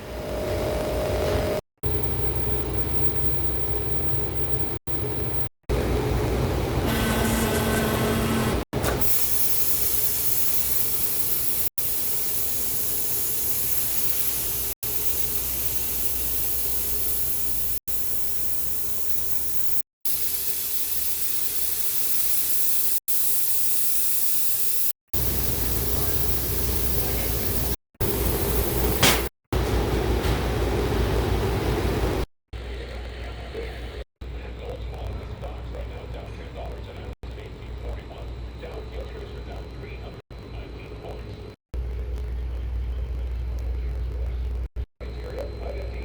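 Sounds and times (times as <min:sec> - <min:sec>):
welding equipment hissing: 0:06.9 - 0:29.3.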